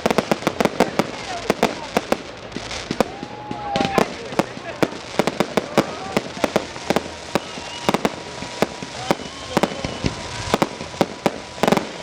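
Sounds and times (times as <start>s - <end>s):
fireworks cracking and banging: 0.0s - 12.0s
faint whistling tone: 7.2s - 12.0s.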